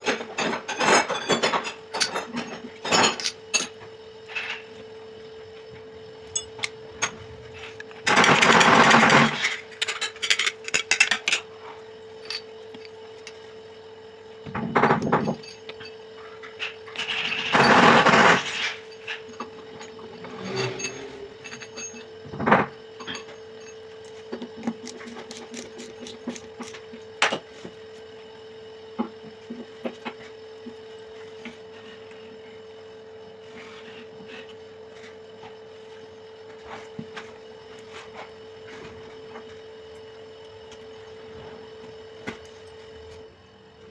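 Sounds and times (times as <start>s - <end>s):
steady hum: 0.0s - 43.9s
clicks and knocks of tools: 6.2s - 11.5s, 18.5s - 27.8s.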